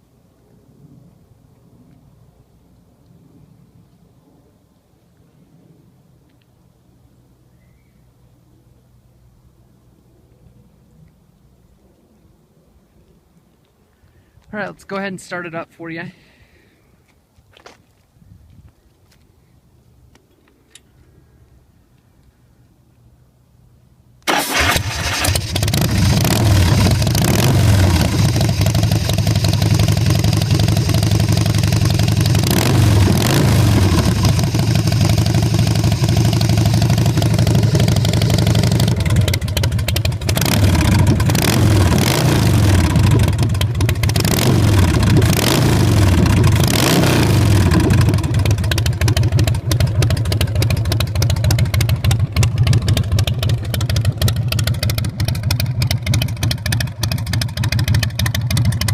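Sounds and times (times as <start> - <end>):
motorcycle engine idling and revving: 24.2 - 58.9.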